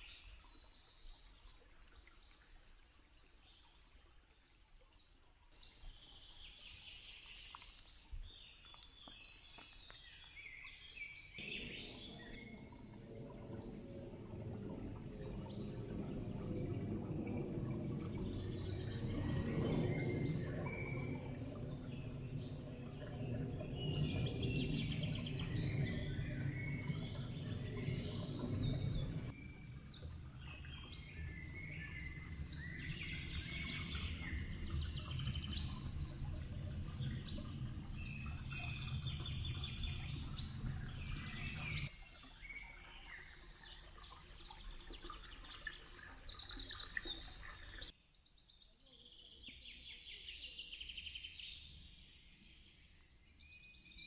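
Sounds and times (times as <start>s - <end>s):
songbirds singing and chirping: 0.0s - 54.0s
low rumble: 11.4s - 41.9s.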